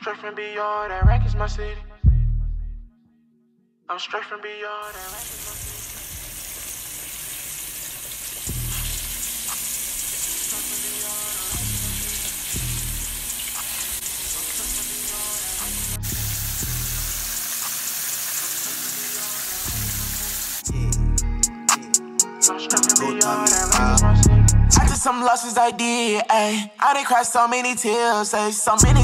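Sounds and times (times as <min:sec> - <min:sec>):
hip-hop deep bass beat: 0:00.9 - 0:02.9, 0:05.0 - 0:06.8, 0:08.4 - 0:17.8, 0:19.2 - 0:25.1, 0:28.8 - 0:29.0
pork chops sizzling in oil: 0:04.9 - 0:20.7.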